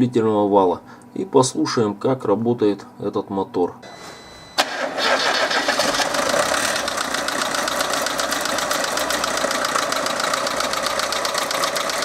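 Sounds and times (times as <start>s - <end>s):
engine idling with valve ticking: 4.6s - 12.0s.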